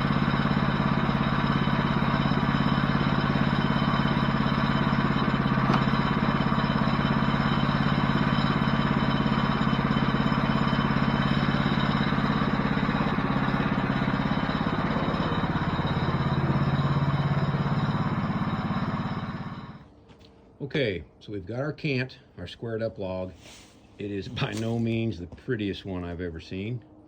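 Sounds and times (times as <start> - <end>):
sawmill engine running: 0.0 - 19.9.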